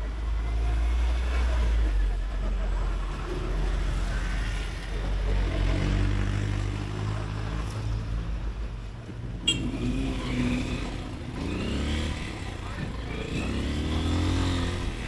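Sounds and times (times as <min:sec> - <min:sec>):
road and traffic noise: 0:00.0 - 0:15.0
short sharp horn toot: 0:09.4 - 0:09.9.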